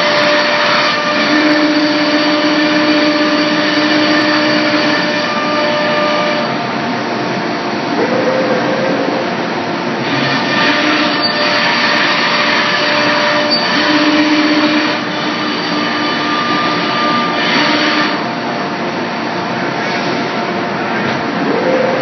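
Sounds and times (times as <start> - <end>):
machine whining tones: 7.7 - 11.7, 21.2 - 22.0.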